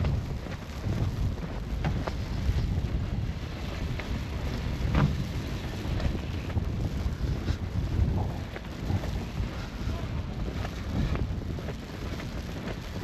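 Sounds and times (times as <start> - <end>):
footsteps crunching in snow: 0.0 - 13.0
wind buffeting microphone: 0.0 - 13.0.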